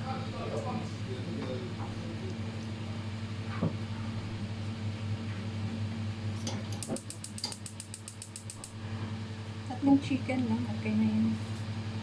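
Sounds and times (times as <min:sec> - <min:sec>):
low machine hum: 0:00.0 - 0:12.0
rapid high clicks: 0:06.8 - 0:08.7.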